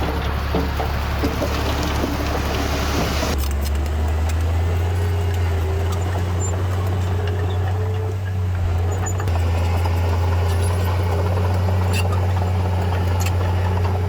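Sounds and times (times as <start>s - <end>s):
diesel engine humming: 0.0s - 14.0s.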